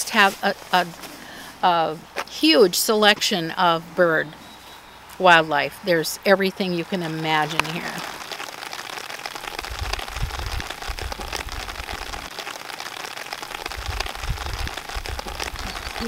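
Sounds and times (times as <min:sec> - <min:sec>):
rain pattering: 0:00.0 - 0:16.0
low rumbles: 0:09.4 - 0:12.3, 0:13.5 - 0:16.0.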